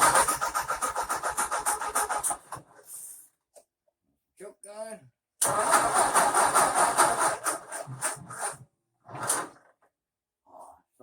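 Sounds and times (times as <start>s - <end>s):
tractor engine cranking: 0.0s - 2.7s, 5.4s - 9.7s.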